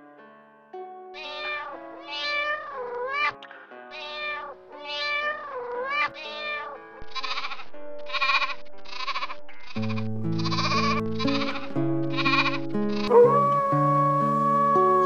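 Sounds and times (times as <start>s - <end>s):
background music with low chords: 0.8s - 15.0s
meowing calls: 1.2s - 15.0s
lambs bleating: 4.1s - 13.1s.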